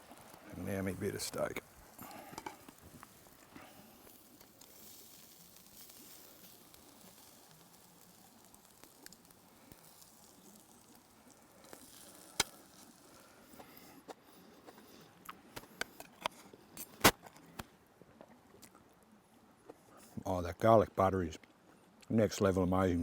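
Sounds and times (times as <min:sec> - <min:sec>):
steak sizzling: 0:00.0 - 0:13.9.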